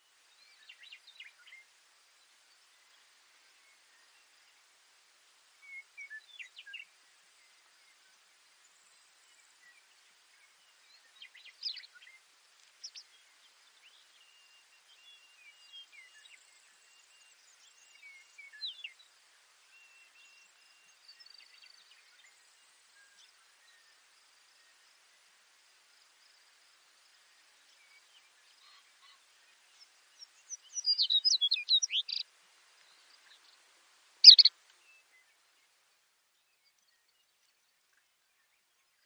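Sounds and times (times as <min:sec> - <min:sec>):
faint outdoor hiss: 0:00.0 - 0:39.0
sparrow singing: 0:30.2 - 0:32.2, 0:34.2 - 0:34.5.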